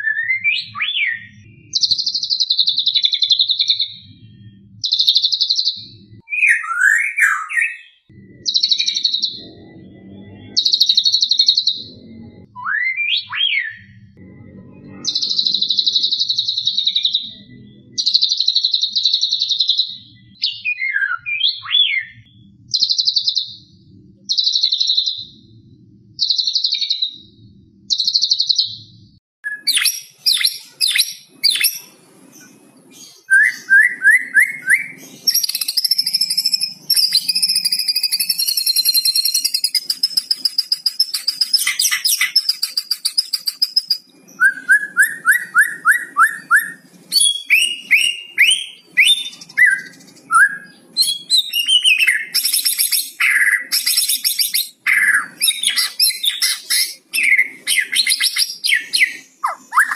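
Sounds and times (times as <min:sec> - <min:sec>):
bird whistles and trills: 0:00.0 - 0:04.1, 0:04.8 - 0:09.5, 0:10.5 - 0:13.9, 0:15.0 - 0:25.4, 0:29.4 - 0:59.9
bird calling with rattling phrases: 0:29.5 - 0:59.9.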